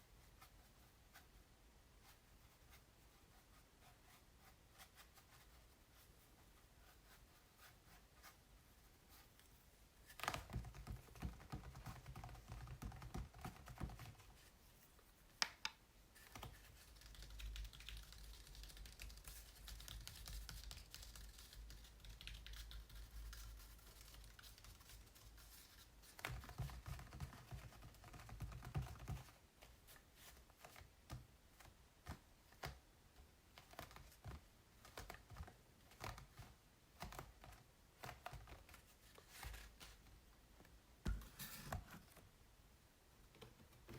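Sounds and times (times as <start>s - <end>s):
soft scratchy rubbing: 2.0s - 10.2s.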